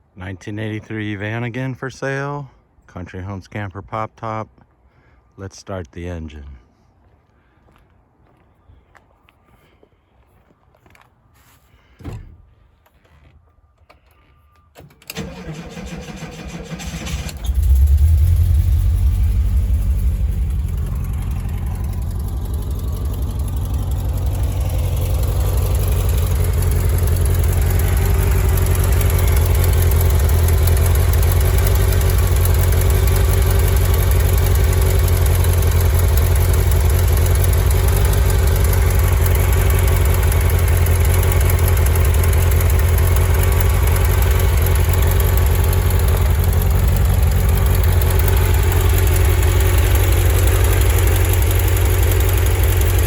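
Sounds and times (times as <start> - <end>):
engine idling: 14.8 - 53.0
starter cranking engine: 14.8 - 53.0.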